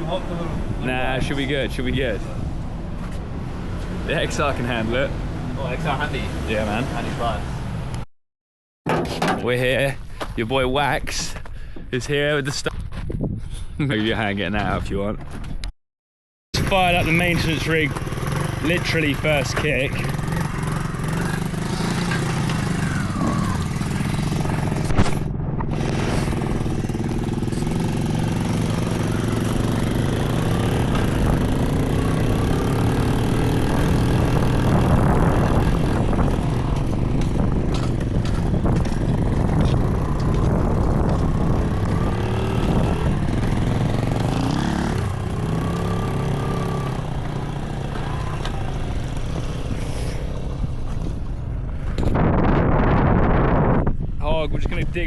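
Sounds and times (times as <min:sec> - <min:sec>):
motorbike engine running: 0:16.6 - 0:49.8.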